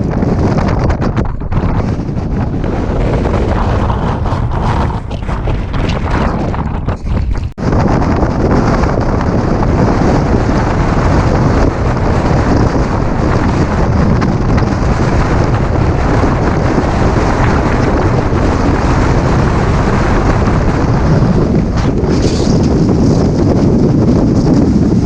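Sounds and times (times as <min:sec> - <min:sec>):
wind blasting microphone: 0:00.0 - 0:25.0.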